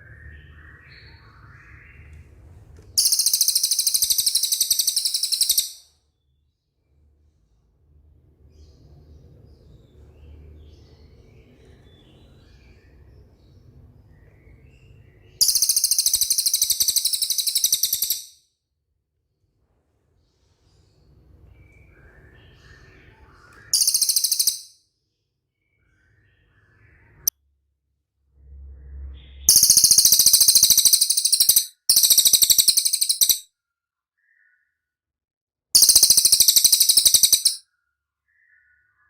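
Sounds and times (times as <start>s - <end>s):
bird singing high-pitched trills: 3.0s - 6.0s, 15.4s - 18.4s, 23.6s - 24.8s, 29.2s - 33.5s, 35.8s - 37.6s
brief low rumble: 28.2s - 29.5s.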